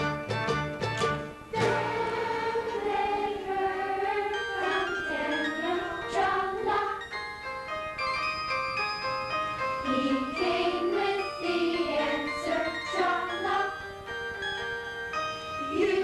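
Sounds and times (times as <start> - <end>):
instrumental accompaniment: 0.0 - 16.0
youth choir singing: 1.6 - 7.1, 9.8 - 13.9, 15.7 - 16.0.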